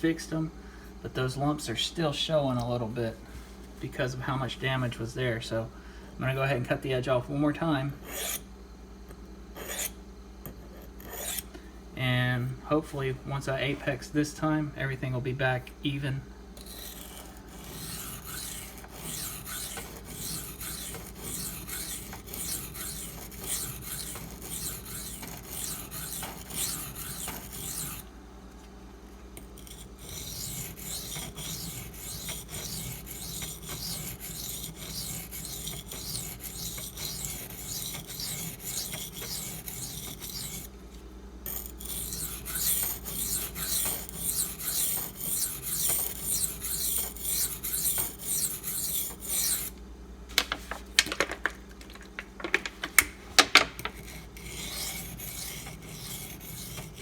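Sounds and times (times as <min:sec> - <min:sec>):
knife scraping on sharpening stone: 0:08.1 - 0:08.4, 0:09.6 - 0:10.0, 0:10.8 - 0:11.5, 0:16.6 - 0:28.0, 0:29.5 - 0:40.7, 0:41.5 - 0:49.7, 0:53.9 - 0:57.0.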